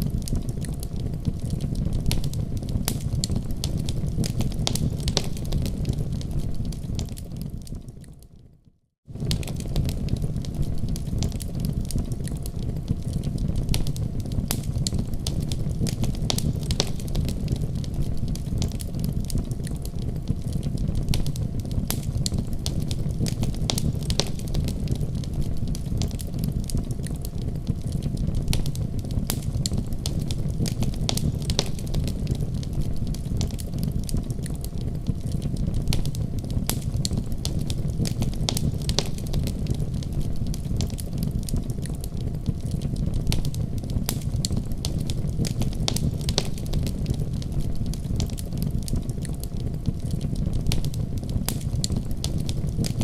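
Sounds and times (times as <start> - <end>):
fireplace crackling and popping: 0.0 - 53.0.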